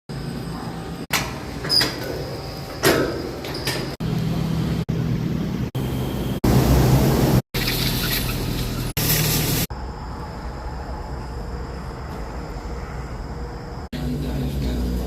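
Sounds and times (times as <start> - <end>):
road noise: 0.1 - 15.0
vehicle engine: 4.0 - 10.0.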